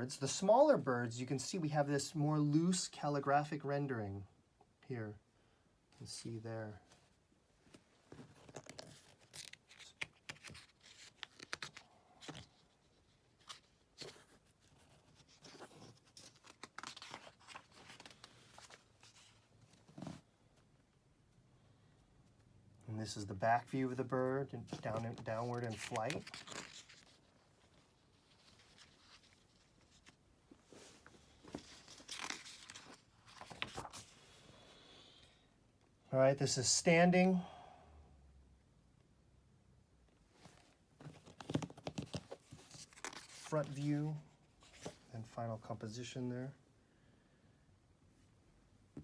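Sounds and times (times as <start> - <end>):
book pages turning: 7.7 - 20.2, 23.7 - 34.4, 40.4 - 43.9, 44.6 - 45.1.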